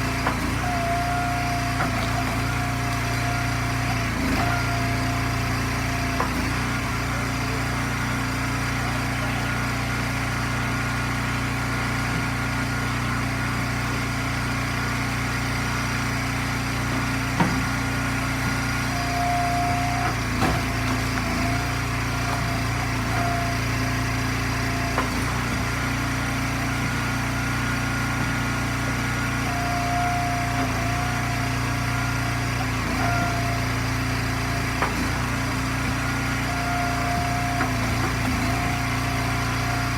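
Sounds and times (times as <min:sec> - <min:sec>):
log splitter engine running: 0:00.0 - 0:39.9.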